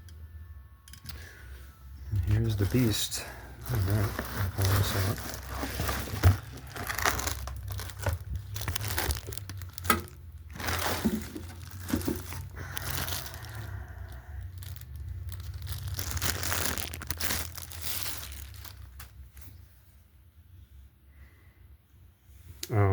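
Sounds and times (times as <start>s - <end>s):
packaging crinkling and rustling: 2.2s - 19.6s.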